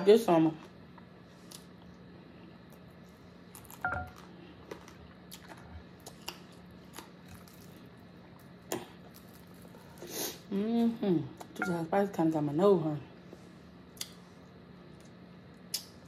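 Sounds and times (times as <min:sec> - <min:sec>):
faint steady hum: 0:00.0 - 0:16.0
chewing crispy food: 0:02.6 - 0:10.1.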